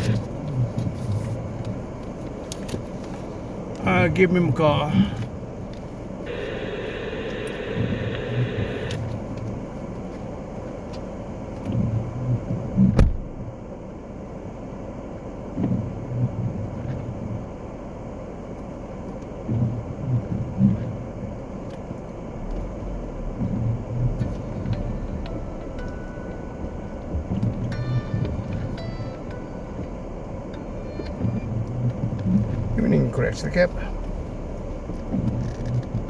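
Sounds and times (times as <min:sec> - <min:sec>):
car engine rumble inside cab: 0:00.0 - 0:36.0.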